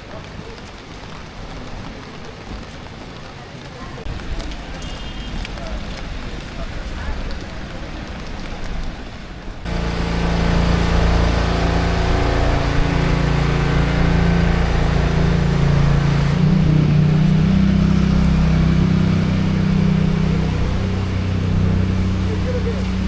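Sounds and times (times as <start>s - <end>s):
wet street noise: 0.0s - 23.0s
vehicle engine humming: 9.6s - 23.0s.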